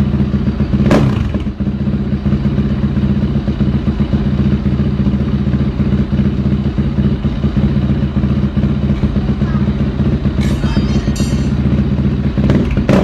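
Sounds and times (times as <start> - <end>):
motorcycle engine idling: 0.0 - 13.0
sharp exhaust crack: 10.1 - 13.0.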